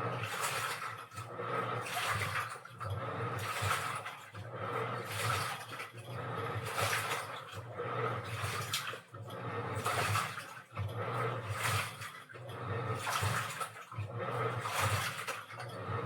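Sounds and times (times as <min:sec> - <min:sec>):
washing machine motor humming: 0:00.0 - 0:16.0
water sloshing in drum: 0:00.0 - 0:16.0.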